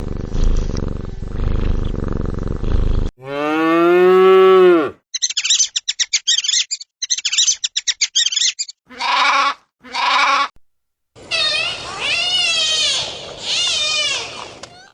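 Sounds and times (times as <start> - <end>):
cat purring: 0.0 - 3.1
cow mooing: 3.2 - 5.0
goat bleating: 8.9 - 10.6.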